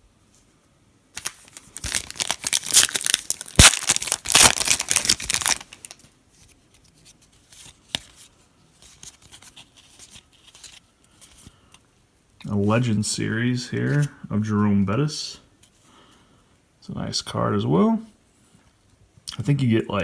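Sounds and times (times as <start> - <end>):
foil wrapper tearing and crinkling: 1.2 - 6.0
cards rustling: 1.2 - 11.8, 13.7 - 14.2.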